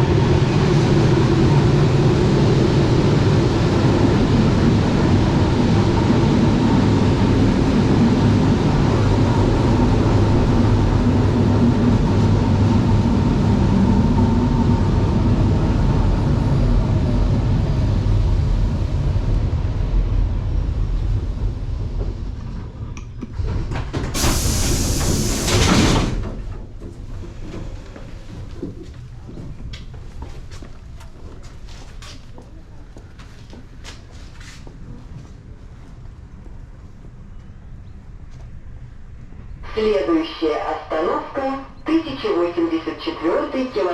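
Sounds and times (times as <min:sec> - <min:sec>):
train rumbling: 0:00.0 - 0:43.9
compressed air hiss: 0:24.2 - 0:25.9.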